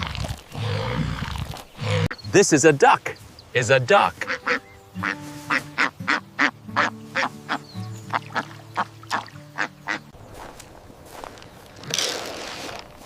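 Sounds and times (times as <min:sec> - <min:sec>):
background music of low notes: 0:03.6 - 0:11.8
duck quacking: 0:04.2 - 0:10.0.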